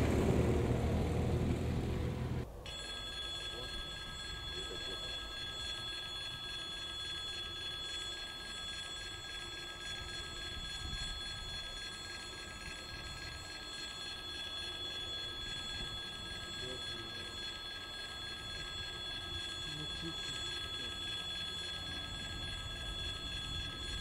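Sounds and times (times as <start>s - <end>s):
freight train rumble: 0.0s - 2.4s
crossing warning bell ringing: 0.0s - 24.0s.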